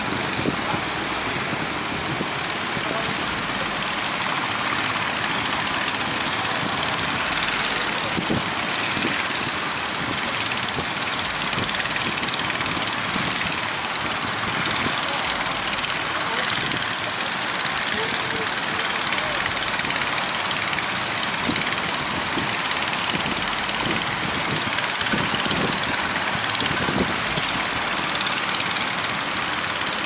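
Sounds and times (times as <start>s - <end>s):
boat engine running: 0.0s - 30.0s.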